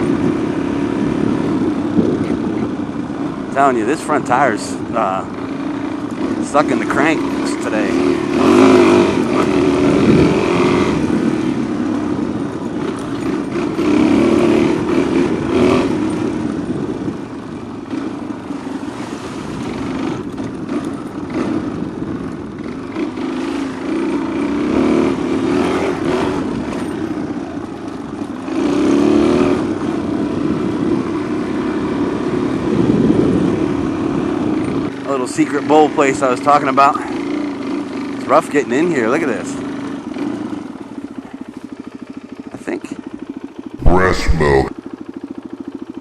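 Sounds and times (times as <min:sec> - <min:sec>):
wind buffeting microphone: 0:01.0 - 0:03.0
motorcycle engine revving: 0:05.4 - 0:11.6.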